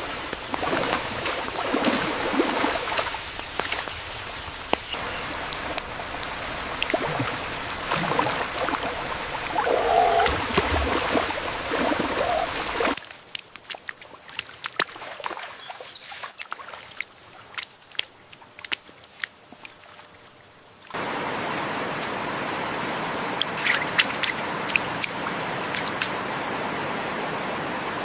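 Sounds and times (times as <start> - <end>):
sharp drips and clicks: 0.0 - 19.7
rushing water: 0.0 - 28.0
bird chirps: 15.0 - 18.0.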